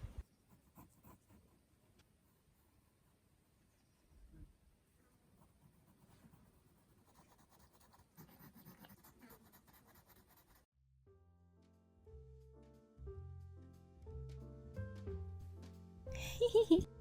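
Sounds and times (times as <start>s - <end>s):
pencil scratching on paper: 0.0s - 3.2s, 5.2s - 10.7s
soft instrumental music: 11.1s - 17.0s.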